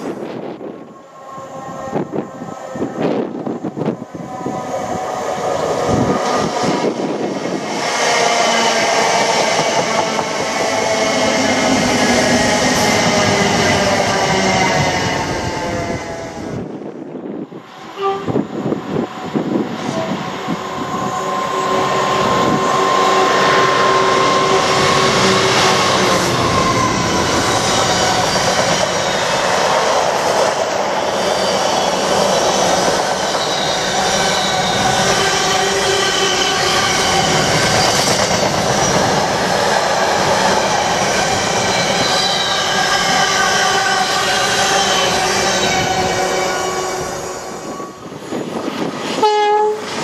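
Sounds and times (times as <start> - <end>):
diesel locomotive passing: 0.0 - 50.0.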